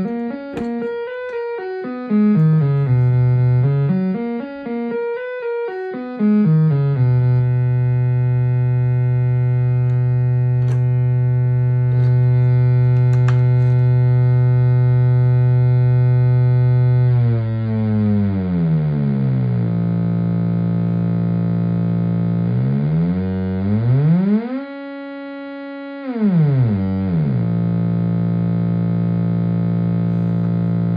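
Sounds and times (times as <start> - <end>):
synthesizer notes: 0.0 - 24.8.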